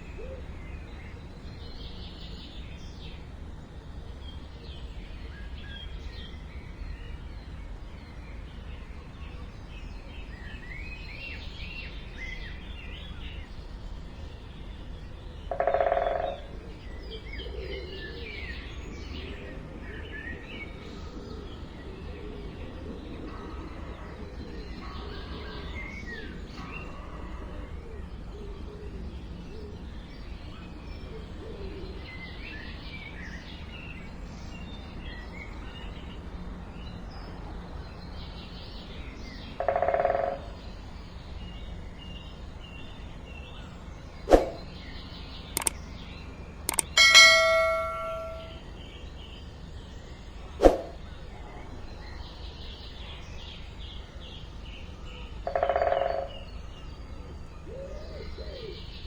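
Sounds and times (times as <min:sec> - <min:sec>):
steady low background noise: 0:00.0 - 0:59.0
small birds chirping: 0:43.6 - 0:46.0
sharp click: 0:46.7 - 0:48.5.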